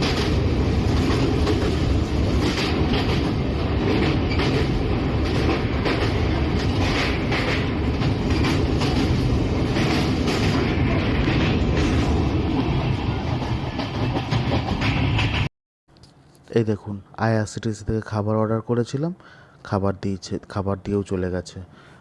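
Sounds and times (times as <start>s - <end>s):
rail-joint clacks: 0.0s - 15.5s
train running gear rumble: 0.0s - 15.5s.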